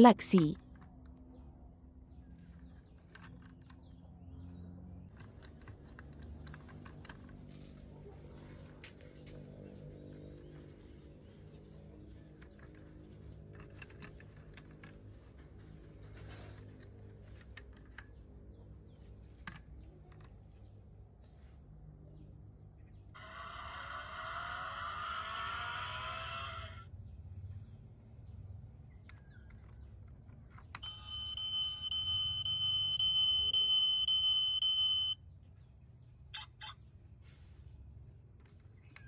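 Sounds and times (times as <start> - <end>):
toy noisy sound effect: 24.4 - 26.8.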